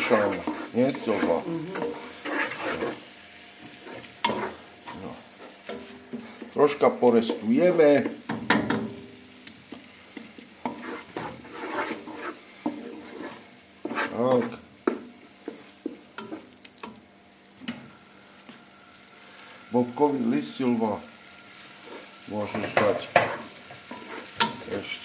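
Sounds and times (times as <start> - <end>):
wooden spatula scraping a pot: 0.0 - 8.3, 9.7 - 16.6, 21.6 - 25.0
soft sizzle of frying paste: 0.0 - 25.0.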